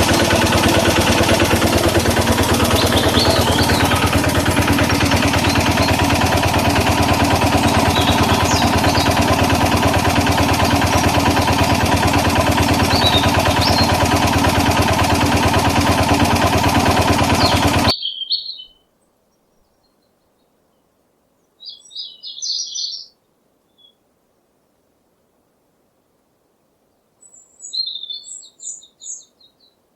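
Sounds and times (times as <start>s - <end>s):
tractor engine running: 0.0s - 17.9s
short bird chirps: 17.4s - 18.9s, 27.2s - 29.8s.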